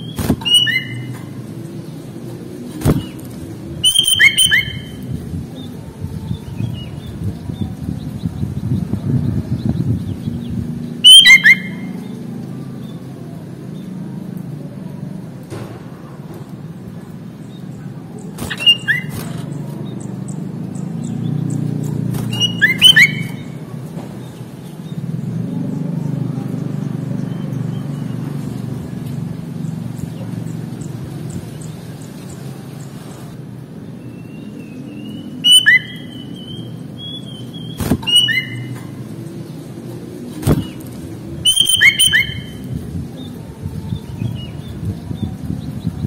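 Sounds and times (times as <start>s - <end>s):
thin wavering whistle: 0.0s - 1.1s, 3.8s - 5.0s, 11.0s - 12.0s, 22.3s - 23.5s, 35.2s - 38.7s, 41.4s - 42.6s
bulbul chirping: 0.0s - 1.2s, 2.8s - 5.0s, 11.0s - 11.9s, 18.4s - 23.6s, 35.4s - 38.8s, 41.4s - 42.6s
steady low rumble: 42.4s - 46.0s.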